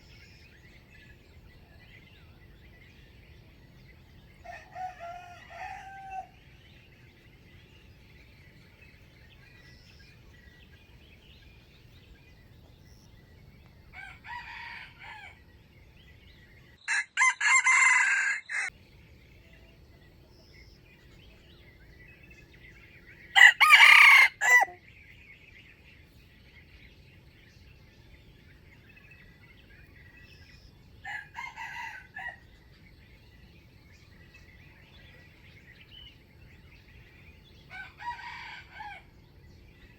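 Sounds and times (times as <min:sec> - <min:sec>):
small birds chirping: 0:00.0 - 0:17.0, 0:18.6 - 0:39.9
roosters crowing: 0:04.4 - 0:06.6, 0:13.9 - 0:15.5, 0:16.8 - 0:18.7, 0:23.3 - 0:24.8, 0:31.0 - 0:32.6, 0:37.6 - 0:39.3.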